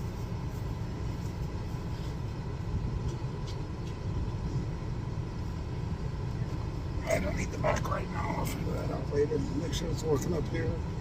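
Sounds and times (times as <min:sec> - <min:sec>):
air conditioning running: 0:00.0 - 0:11.0.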